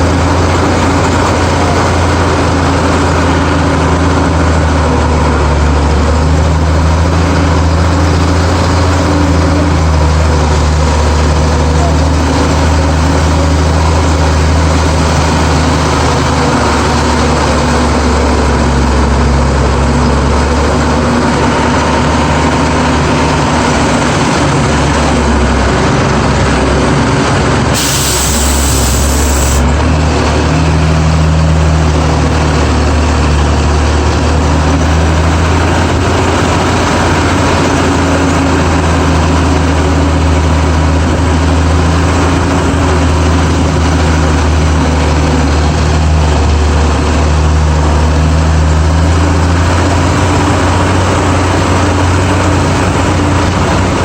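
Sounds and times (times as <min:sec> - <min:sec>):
truck engine running: 0:00.0 - 0:54.0
brief hiss: 0:27.8 - 0:29.6.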